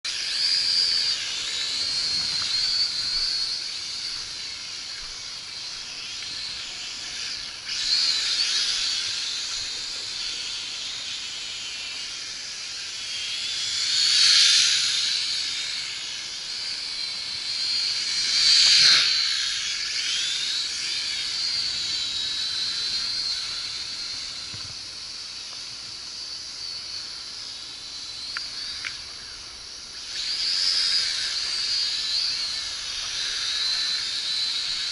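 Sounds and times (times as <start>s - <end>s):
toy drone propellers whining: 0.0s - 34.9s.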